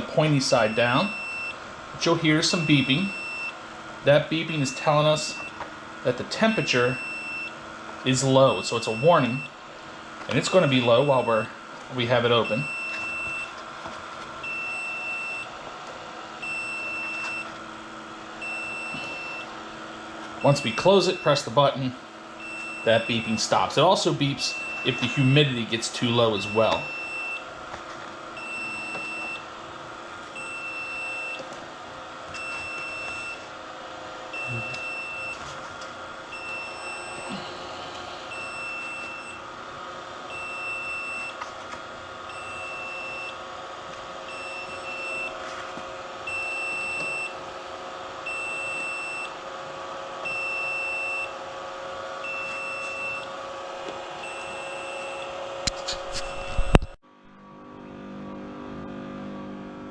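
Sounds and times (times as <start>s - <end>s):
steady hum: 0.0s - 59.9s
short high alarm beeps: 6.5s - 7.6s, 18.4s - 19.5s, 26.3s - 27.4s, 34.4s - 35.4s.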